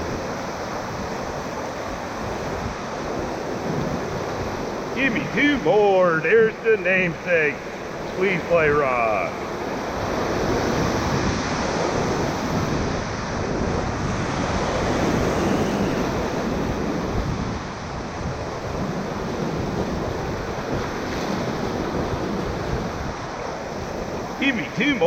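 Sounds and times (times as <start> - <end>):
wind noise on microphone: 0.0 - 5.1, 9.4 - 24.4
whitewater rapids rushing: 4.2 - 17.2, 23.4 - 25.0.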